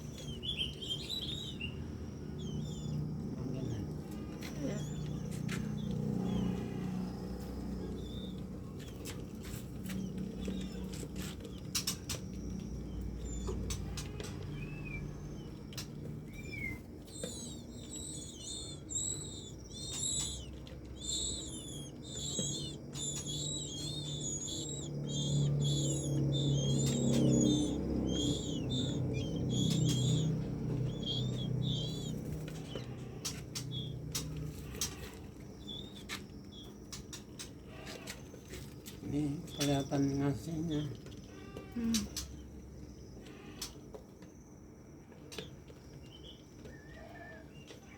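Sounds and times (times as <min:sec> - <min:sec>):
low hum: 0:00.0 - 0:34.9
nestlings begging chirps: 0:00.0 - 0:47.9.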